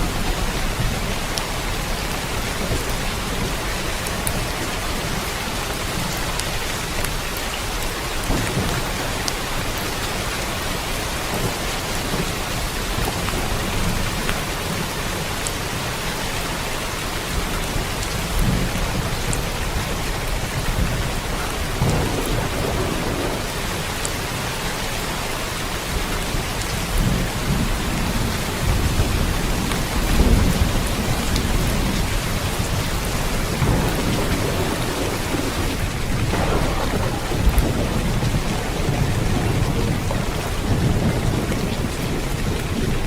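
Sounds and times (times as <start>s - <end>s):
steady rain hiss: 0.0s - 43.0s
low rumbles: 33.3s - 43.0s.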